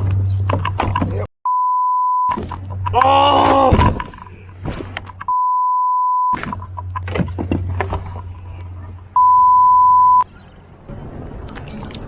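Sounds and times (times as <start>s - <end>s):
censor bleeps: 1.5s - 2.4s, 5.3s - 6.4s, 9.2s - 10.2s.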